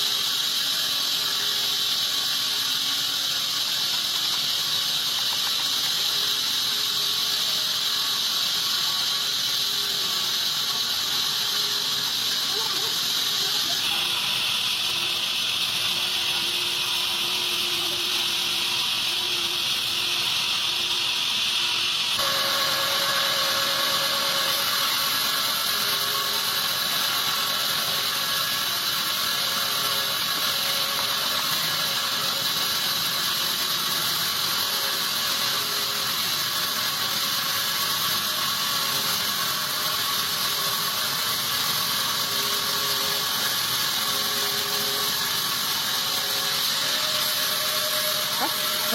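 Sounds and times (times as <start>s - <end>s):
sawmill saw ripping a log: 22.2s - 48.9s.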